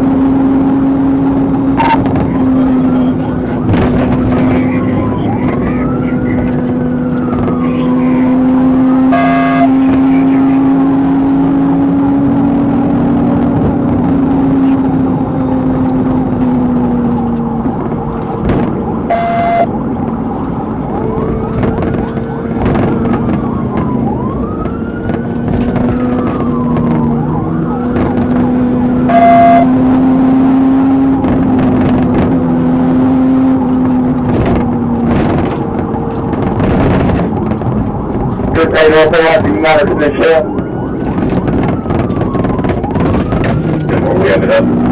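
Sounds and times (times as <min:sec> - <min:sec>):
police siren wailing: 0:00.0 - 0:44.9
vehicle drone: 0:00.0 - 0:44.9
short beeps: 0:01.8 - 0:02.0, 0:09.1 - 0:09.8, 0:19.1 - 0:19.7, 0:29.1 - 0:29.8.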